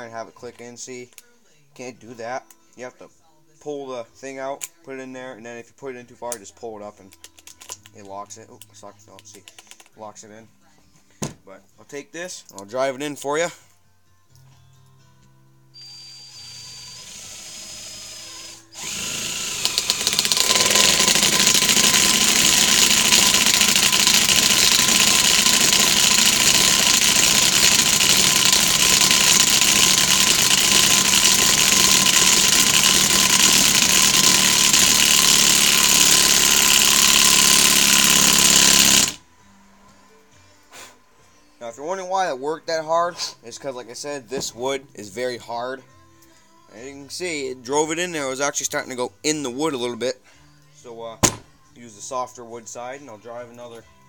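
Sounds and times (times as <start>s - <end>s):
impact driver motor whir: 15.8s - 39.2s
impact driver hammering: 18.8s - 39.2s, 51.2s - 51.5s.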